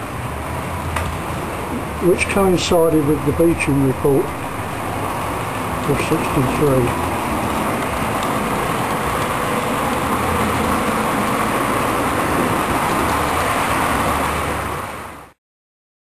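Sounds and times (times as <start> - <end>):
model train rolling on track: 1.8 - 14.7.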